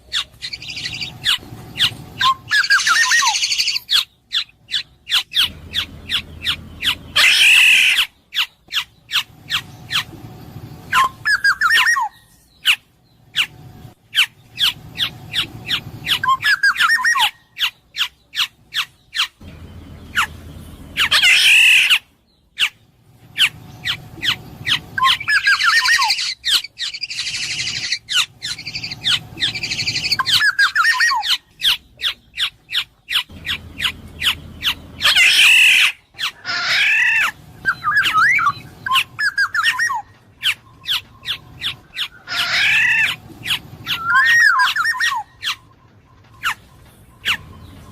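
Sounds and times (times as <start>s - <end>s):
bird harsh scratchy calls: 0.0s - 10.2s, 10.9s - 47.9s
bird fluty whistled phrases: 2.2s - 5.5s, 10.9s - 12.7s, 24.7s - 32.2s, 43.8s - 45.7s.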